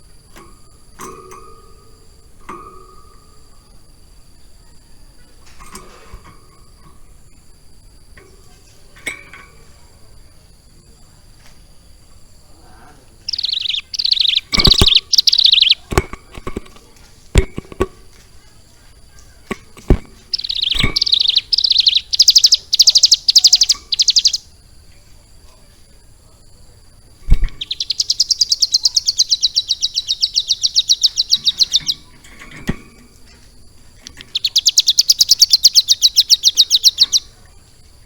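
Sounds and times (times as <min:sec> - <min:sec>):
bird chattering song: 0:00.0 - 0:25.6, 0:26.3 - 0:38.0
sharp clicks: 0:13.3 - 0:18.4, 0:19.1 - 0:24.5, 0:27.2 - 0:37.3.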